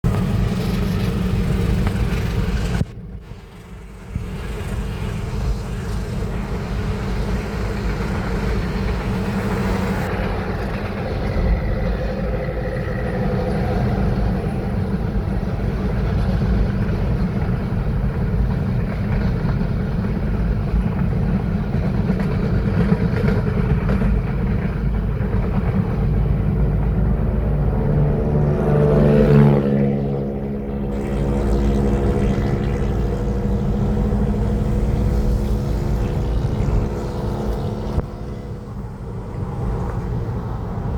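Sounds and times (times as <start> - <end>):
train rumbling: 0.0 - 40.9
engine note rising in pitch: 26.1 - 39.1.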